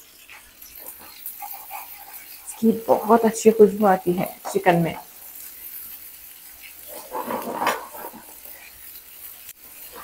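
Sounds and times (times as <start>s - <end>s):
vegetables sizzling in hot oil: 0.0s - 10.0s
wooden spatula stirring: 0.3s - 5.5s, 6.4s - 9.0s.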